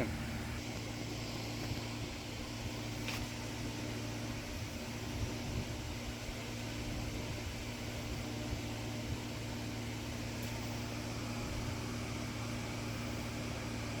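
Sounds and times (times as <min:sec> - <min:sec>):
machine hum with hiss: 0:00.0 - 0:14.0.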